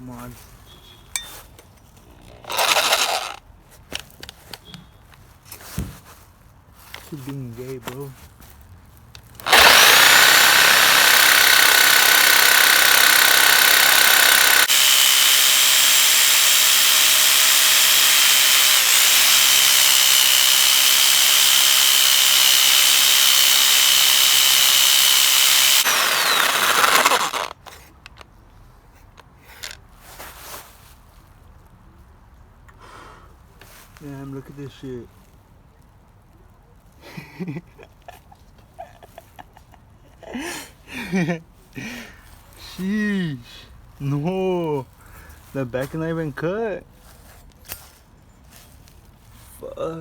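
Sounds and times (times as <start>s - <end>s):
power saw cutting metal: 2.5s - 3.4s, 9.4s - 27.5s.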